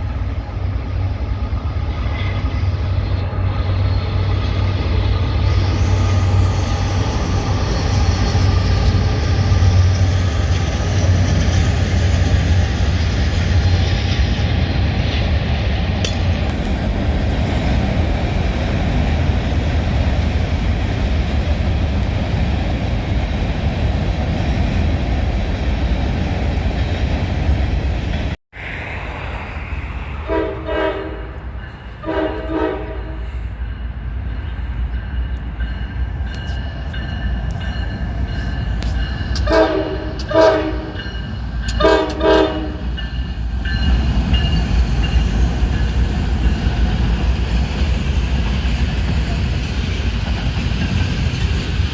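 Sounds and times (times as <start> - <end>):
train rumbling by: 0.0 - 51.9
locomotive chime horn blasts: 30.3 - 33.4, 38.8 - 43.2.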